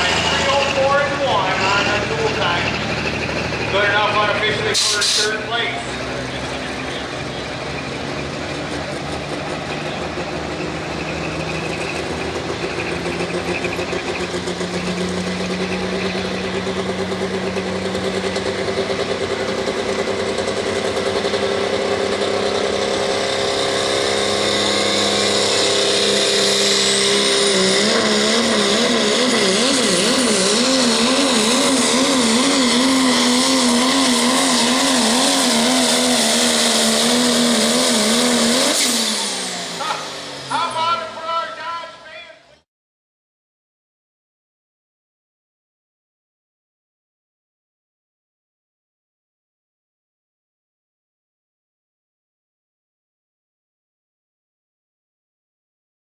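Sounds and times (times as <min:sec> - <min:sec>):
truck engine working under load: 0:00.0 - 0:42.4.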